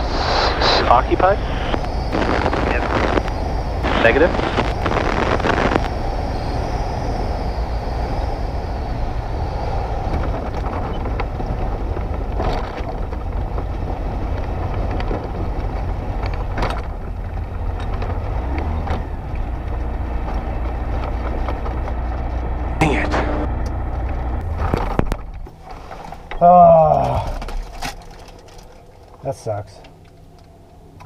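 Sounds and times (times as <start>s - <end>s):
plane engine and propeller: 0.0s - 31.0s
sharp clicks: 0.8s - 8.4s.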